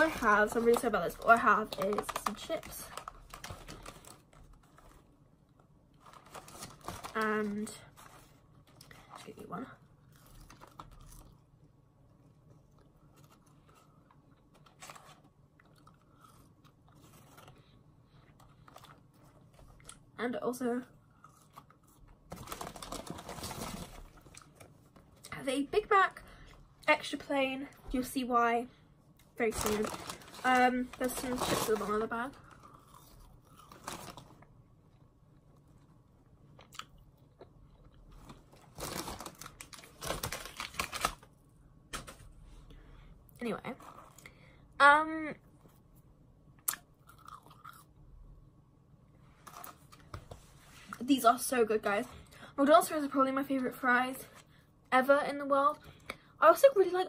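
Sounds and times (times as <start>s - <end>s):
paper bag crackling: 0.0s - 5.0s, 6.0s - 8.3s, 22.3s - 24.6s, 29.4s - 32.4s, 33.6s - 34.4s, 38.2s - 41.3s
faint chewing of fries: 7.9s - 20.2s, 20.9s - 25.3s, 32.3s - 41.3s, 46.6s - 48.0s
person chewing fries: 15.5s - 17.6s, 21.0s - 22.7s, 32.4s - 34.4s, 35.7s - 39.7s, 46.7s - 48.0s.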